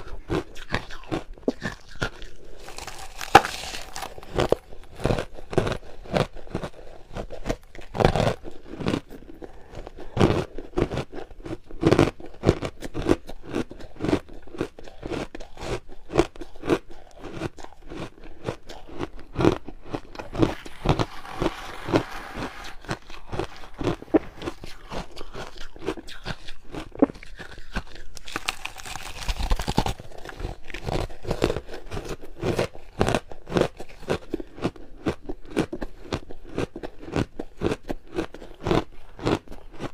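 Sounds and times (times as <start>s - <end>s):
person chewing hard ice: 0.0s - 39.9s
brief rasping noise: 20.2s - 24.4s.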